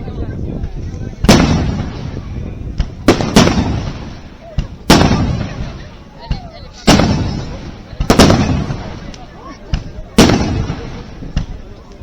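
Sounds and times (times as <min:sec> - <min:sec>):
firework shells bursting: 0:02.8 - 0:05.8, 0:06.8 - 0:11.6
faint firework cracks: 0:02.8 - 0:12.0.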